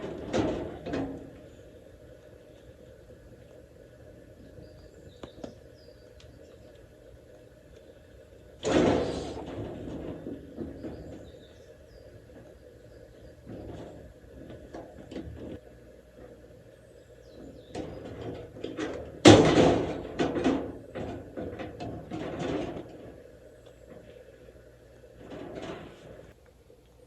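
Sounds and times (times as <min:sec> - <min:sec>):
knocks and clattering of objects: 0:00.0 - 0:01.4, 0:08.6 - 0:11.4, 0:17.7 - 0:23.2
rattling and rustling: 0:00.0 - 0:02.1, 0:08.6 - 0:15.6, 0:17.3 - 0:24.3, 0:25.0 - 0:26.4.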